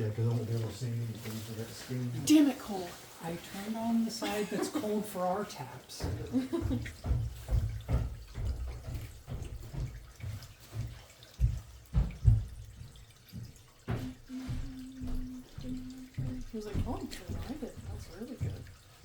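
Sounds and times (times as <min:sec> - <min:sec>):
water splashing and gurgling: 0:00.0 - 0:19.0
low thumps: 0:11.4 - 0:18.8
steady low hum: 0:14.0 - 0:18.2.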